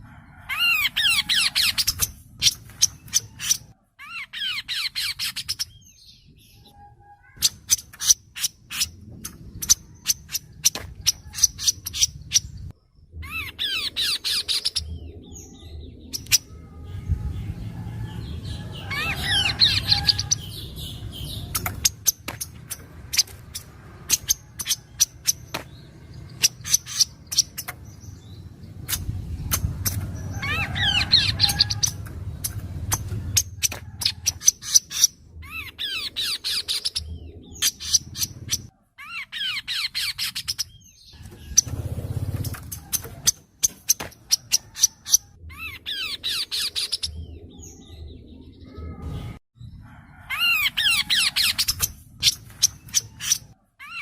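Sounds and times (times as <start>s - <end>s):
bird trilled song: 0.6s - 49.8s
bird ticking calls: 18.9s - 38.7s.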